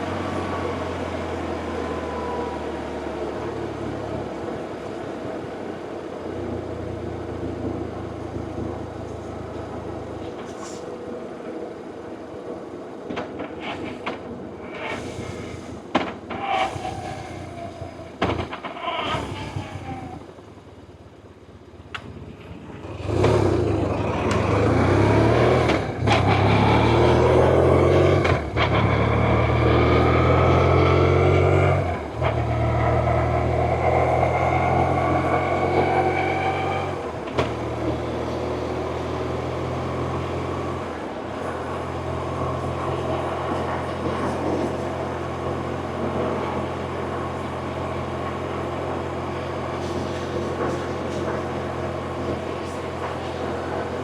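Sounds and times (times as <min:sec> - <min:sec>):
motorcycle engine accelerating: 0:22.0 - 0:54.0.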